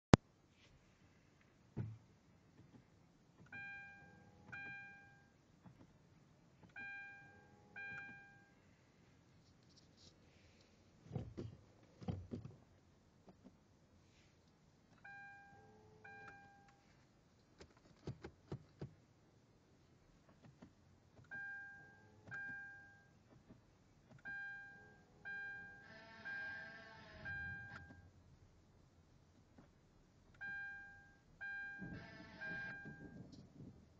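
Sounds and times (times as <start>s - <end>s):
dashboard warning chime dinging: 3.5s - 5.4s, 6.7s - 8.6s, 15.0s - 16.9s, 21.3s - 23.2s, 24.2s - 28.1s, 30.4s - 33.3s.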